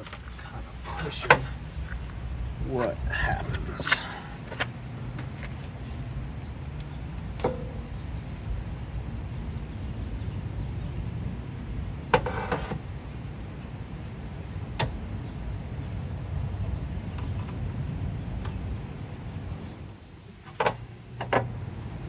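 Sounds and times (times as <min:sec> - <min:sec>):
steady low rumble: 0:00.0 - 0:22.0
sharp knocks on metal bracket: 0:07.4 - 0:07.9.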